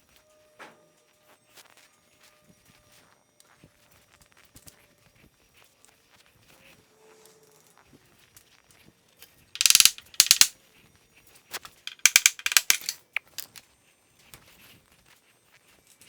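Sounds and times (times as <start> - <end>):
rapid ratchet-like clicking: 9.6 - 10.5, 11.7 - 13.6.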